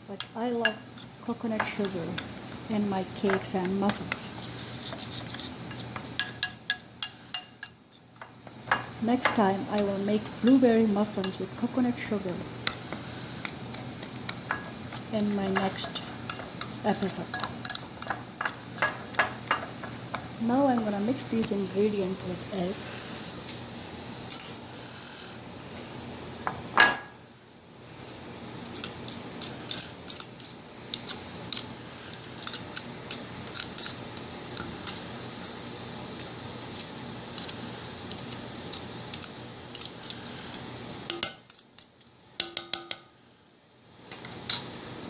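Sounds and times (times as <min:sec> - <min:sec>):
utensil clinking against mixing bowl: 0:41.1 - 0:41.6, 0:42.4 - 0:43.2.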